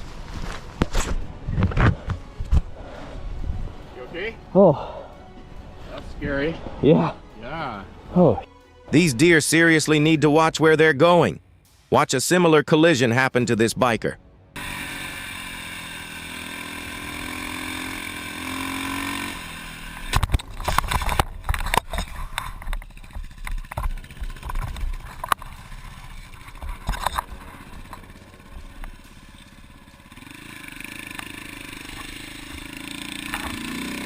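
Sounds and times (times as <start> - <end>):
motorcycle engine running: 14.6 - 34.0
knocks and clattering: 20.1 - 29.6.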